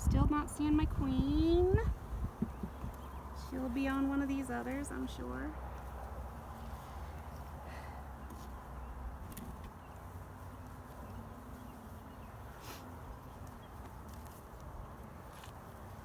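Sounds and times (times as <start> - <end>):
honeybees buzzing faintly: 0.3 - 16.0.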